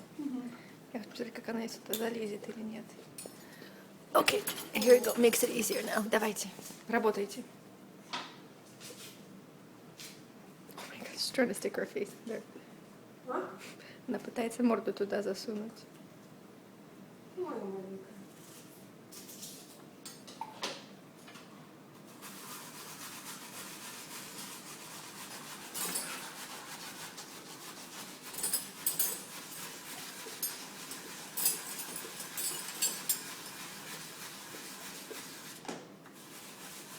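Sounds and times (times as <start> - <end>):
dogs licking dishes: 22.4 - 35.6.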